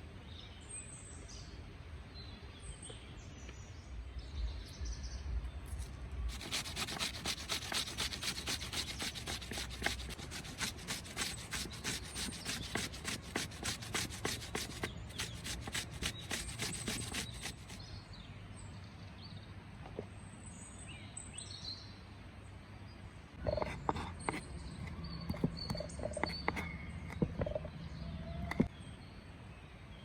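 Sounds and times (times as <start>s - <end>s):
rough scraping on wood: 5.7s - 17.8s.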